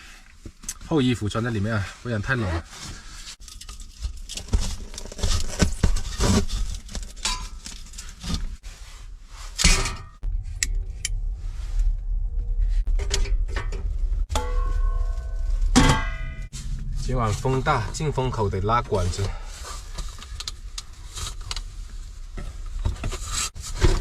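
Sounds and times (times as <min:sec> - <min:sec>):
metal clinking and scraping: 0:02.8 - 0:08.6, 0:12.6 - 0:17.4
stove low rumble: 0:07.2 - 0:22.8.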